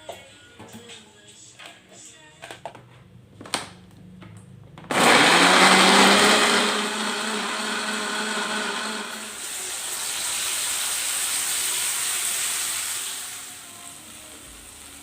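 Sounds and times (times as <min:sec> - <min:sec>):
blender motor running: 0:04.9 - 0:10.3.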